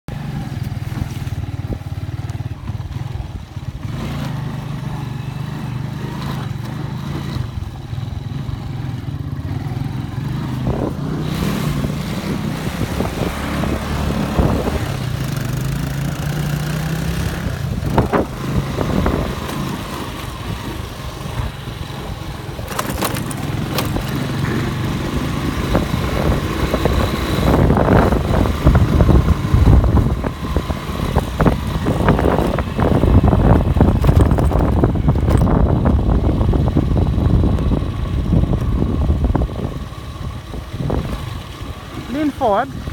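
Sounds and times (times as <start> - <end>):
wind buffeting microphone: 9.7 - 42.1.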